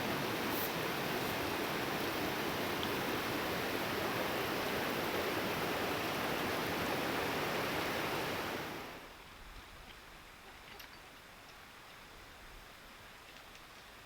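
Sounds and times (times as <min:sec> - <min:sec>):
running water rushing: 0:00.0 - 0:09.1.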